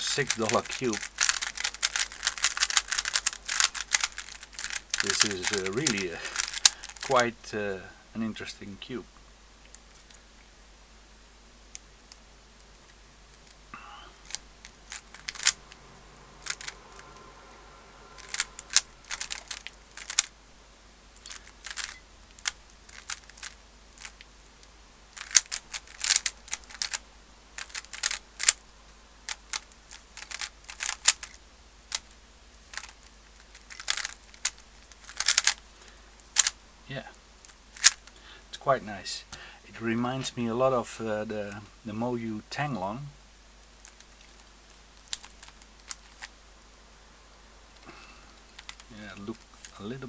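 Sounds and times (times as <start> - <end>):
plastic puzzle cube clicking: 0.0 - 7.2, 14.2 - 15.8, 16.4 - 17.1, 18.2 - 20.3, 21.2 - 24.3, 25.1 - 27.0, 27.6 - 28.6, 29.3 - 35.6, 36.2 - 36.6, 37.4 - 38.2, 43.8 - 46.3, 48.5 - 49.8.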